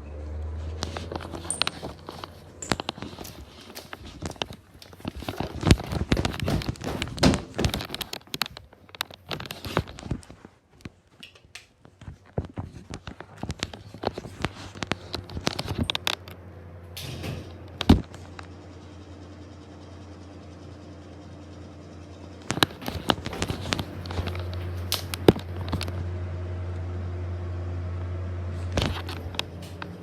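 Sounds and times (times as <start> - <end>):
exhaust fan humming: 0.0 - 30.0
clicks knocks and rattles: 0.8 - 16.4.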